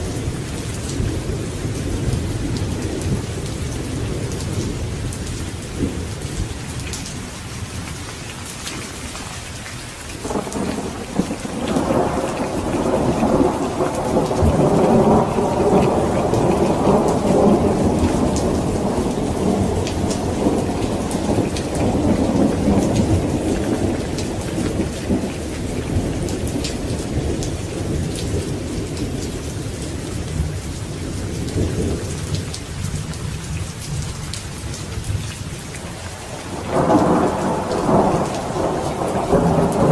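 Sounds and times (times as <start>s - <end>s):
steady rain falling: 0.0s - 39.9s
thunder rumbling: 10.2s - 39.9s.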